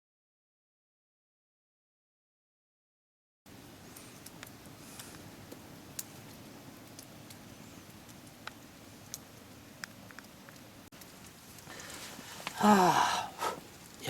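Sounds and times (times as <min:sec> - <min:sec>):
small clicks and ticks: 0:03.9 - 0:12.6.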